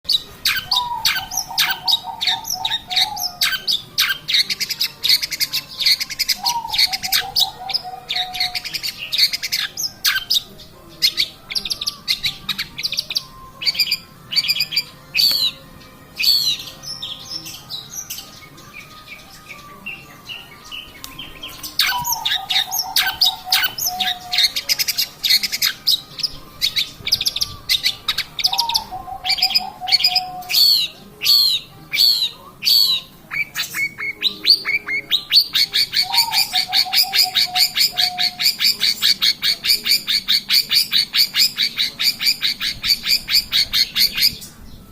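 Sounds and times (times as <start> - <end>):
shrike singing chattering phrases: 0.1 - 44.9.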